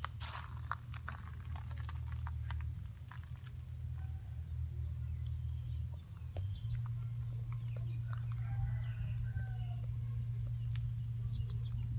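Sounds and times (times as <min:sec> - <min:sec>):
steady low hum: 0:00.0 - 0:11.9
bird chirping: 0:04.8 - 0:09.8.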